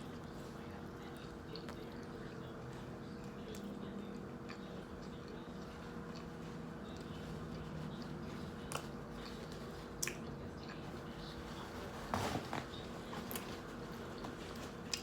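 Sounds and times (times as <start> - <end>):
person chewing food: 0.0 - 10.9, 14.1 - 15.0.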